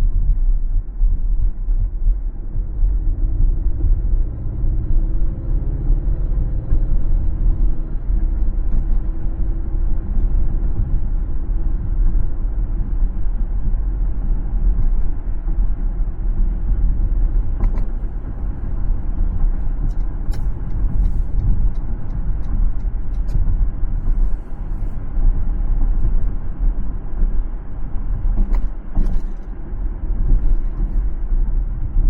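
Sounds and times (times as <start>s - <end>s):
road and engine rumble: 0.0s - 32.0s.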